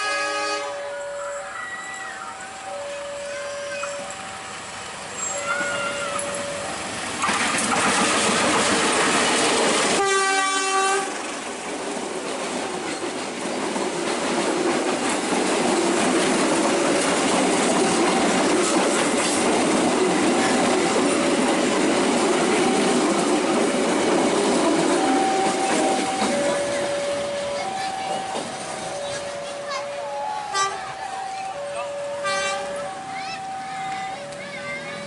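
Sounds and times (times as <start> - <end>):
train horn: 0.0 - 1.1, 10.0 - 11.3, 30.5 - 30.9, 32.2 - 32.8
train wheels on rails: 0.0 - 35.0.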